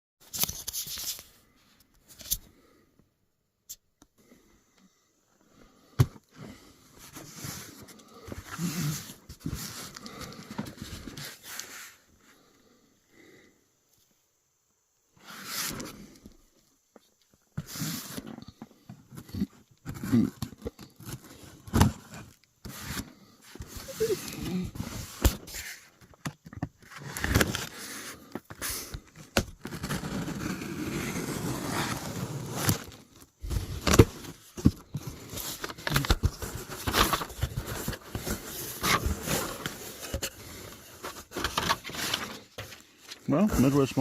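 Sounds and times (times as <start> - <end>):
packaging crackling and rustling: 29.5 - 44.0.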